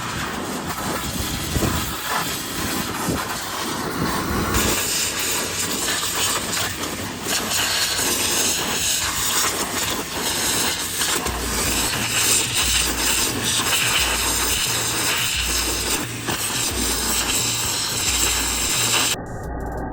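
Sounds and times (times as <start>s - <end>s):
pressure washer spray hissing: 0.0s - 19.2s
deep bass beat: 11.3s - 19.9s.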